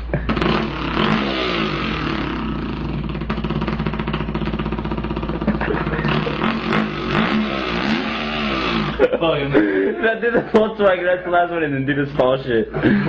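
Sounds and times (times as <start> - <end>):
man imitating engine with voice: 4.4 - 9.6.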